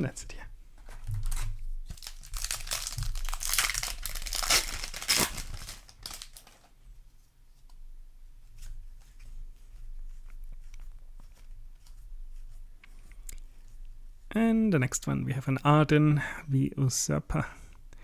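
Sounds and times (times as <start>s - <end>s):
foil wrapper tearing and crinkling: 1.2s - 6.7s.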